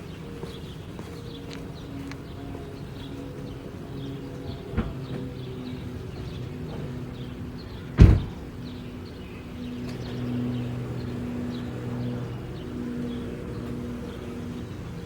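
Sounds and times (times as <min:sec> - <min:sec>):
loud thump: 0:08.0 - 0:08.5.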